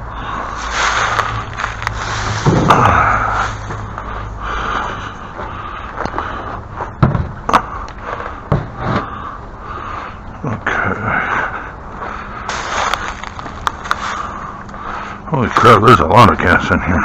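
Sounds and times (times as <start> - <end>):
objects scraping and dragging: 0.0 - 7.0, 12.4 - 15.7
objects knocking and bumping: 1.1 - 3.9, 7.0 - 7.6, 8.5 - 9.1.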